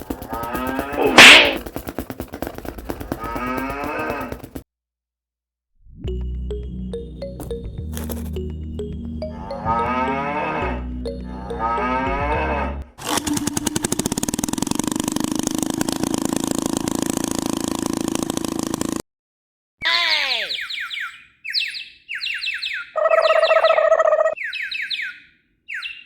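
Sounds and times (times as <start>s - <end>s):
fast mechanical rattle: 0.0s - 4.6s, 13.0s - 19.0s
cow mooing: 0.4s - 1.6s, 9.4s - 12.9s
background music: 6.0s - 12.9s.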